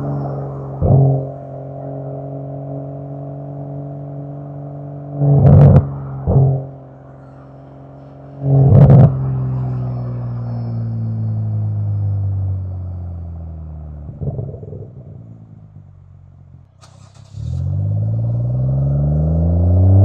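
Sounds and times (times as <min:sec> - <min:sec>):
car engine revving loudly: 0:00.0 - 0:02.5, 0:05.2 - 0:06.8, 0:16.8 - 0:20.0
car engine droning: 0:00.0 - 0:20.0
exhaust crackles: 0:05.2 - 0:20.0.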